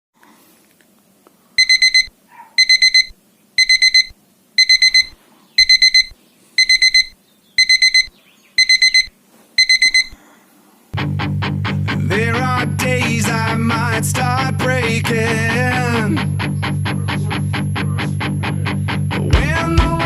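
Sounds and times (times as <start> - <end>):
electronic alarm beeping: 1.6 - 10.2.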